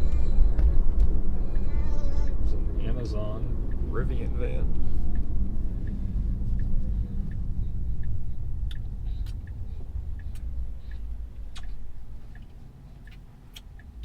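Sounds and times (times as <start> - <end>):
road and tyre rumble: 0.0 - 14.0
faint regular tick: 3.6 - 14.0.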